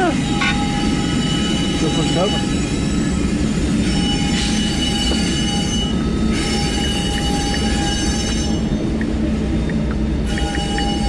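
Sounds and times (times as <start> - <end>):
high wheel squeal: 0.0 - 9.0, 10.2 - 11.0
freight train low rumble: 0.0 - 11.0.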